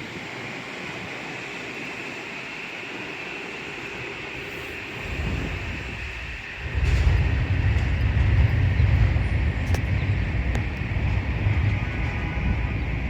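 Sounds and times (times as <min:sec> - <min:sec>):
train rolling with hiss: 0:00.0 - 0:13.0
wind buffeting microphone: 0:03.3 - 0:13.0.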